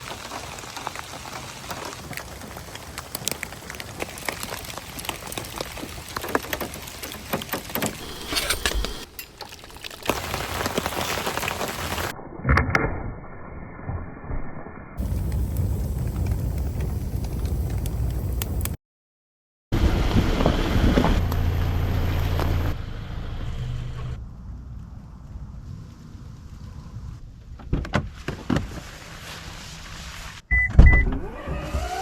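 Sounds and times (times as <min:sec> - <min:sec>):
rain pattering: 0:00.0 - 0:08.0, 0:08.9 - 0:12.1, 0:15.0 - 0:18.8.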